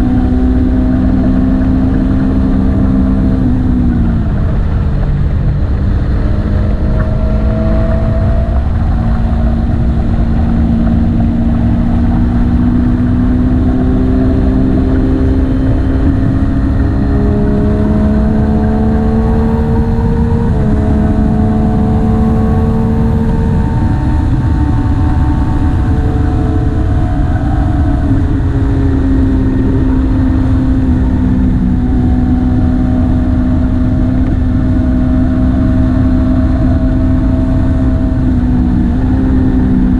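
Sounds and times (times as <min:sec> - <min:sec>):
low rushing noise: 0:00.0 - 0:39.9
motorcycle engine running: 0:00.0 - 0:39.9.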